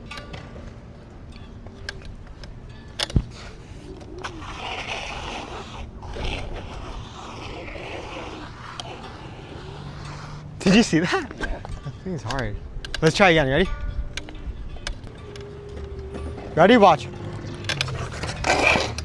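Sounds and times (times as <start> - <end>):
scooter wheels rattling on pavement: 4.0 - 11.8, 17.4 - 19.0.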